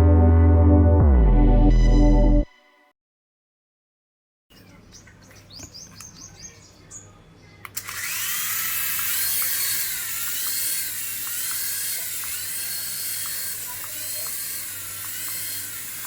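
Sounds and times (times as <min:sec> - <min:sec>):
small electric motor whirring: 0:07.8 - 0:16.0.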